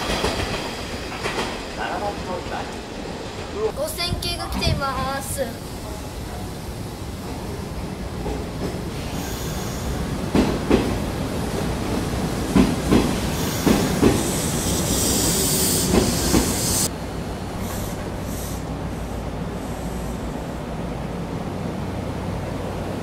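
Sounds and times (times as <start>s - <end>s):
train wheels clacking over rail joints: 0.0s - 3.2s, 8.2s - 16.9s
train brake squeal and hiss: 8.9s - 10.2s, 13.2s - 16.9s, 17.5s - 20.4s.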